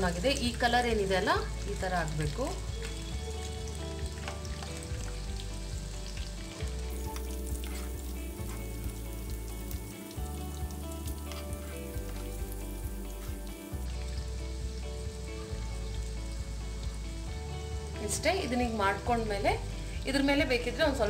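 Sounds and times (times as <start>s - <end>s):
food sizzling in hot oil: 0.0s - 21.0s
spoon turning food in pan: 2.7s - 14.3s.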